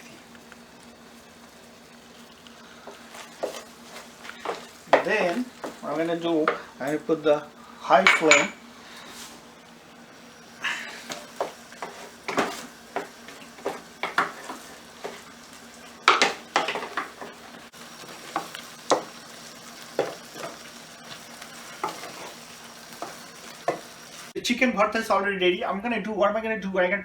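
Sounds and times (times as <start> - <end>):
light sizzle: 0.0 - 24.4
spatula scraping a pan: 2.1 - 6.8, 10.8 - 24.2.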